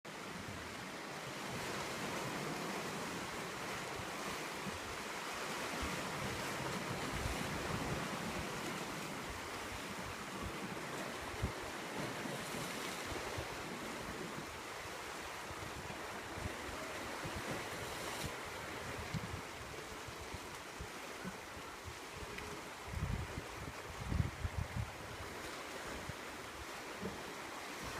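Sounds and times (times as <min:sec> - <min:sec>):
surf washing on shore: 0:00.1 - 0:27.9
wind buffeting microphone: 0:22.9 - 0:25.2.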